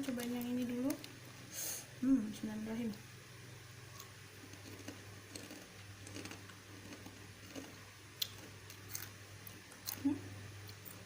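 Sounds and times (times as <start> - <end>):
low steady hum: 0.0 - 11.0
person chewing food: 3.9 - 11.0.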